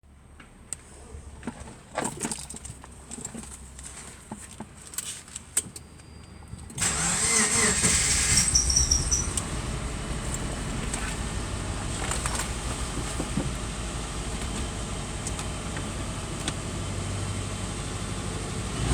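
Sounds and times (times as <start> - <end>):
car engine starting and running: 6.5 - 18.9
starter clicks and knocks: 10.1 - 16.8.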